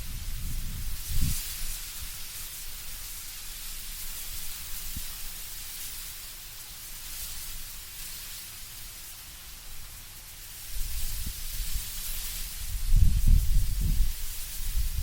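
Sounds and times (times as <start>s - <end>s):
low rumble of wind: 0.0s - 5.4s, 10.6s - 15.0s.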